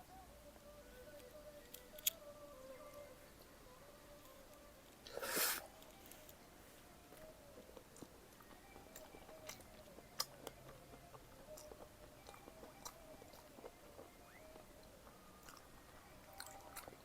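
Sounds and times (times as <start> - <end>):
wet chewing sounds: 7.6 - 17.0.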